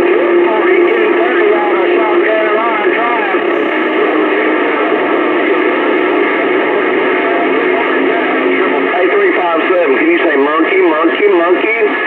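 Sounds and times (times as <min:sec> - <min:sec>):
garbled overlapping radio voices: 0:00.0 - 0:12.0
heterodyne whistles: 0:00.1 - 0:08.4.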